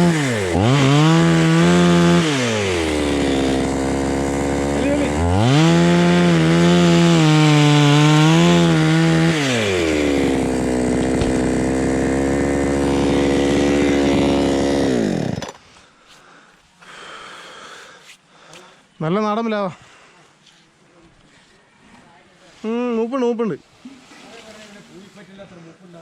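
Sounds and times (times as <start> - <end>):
chainsaw engine revving and idling: 0.0 - 15.6.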